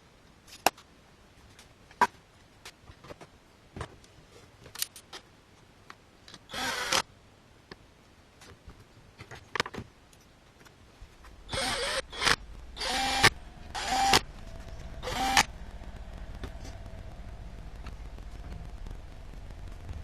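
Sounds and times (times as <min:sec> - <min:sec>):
power tool buzzing: 0:06.5 - 0:07.0, 0:11.5 - 0:14.3, 0:15.0 - 0:15.6.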